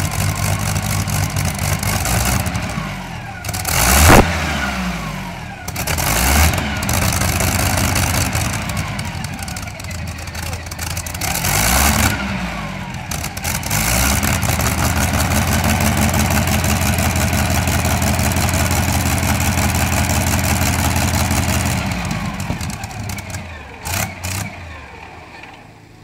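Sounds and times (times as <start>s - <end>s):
tractor engine revving: 0.0s - 26.0s.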